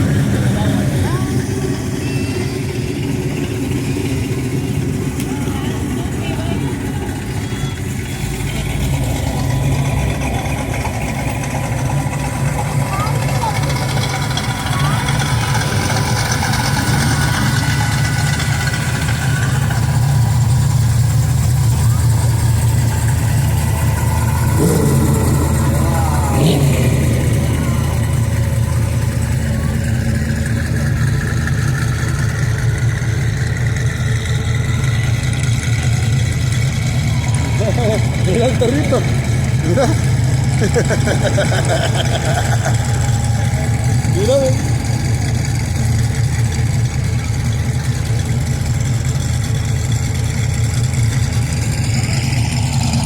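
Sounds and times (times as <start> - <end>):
car engines running low: 0.0 - 53.0
street noise: 0.0 - 53.0.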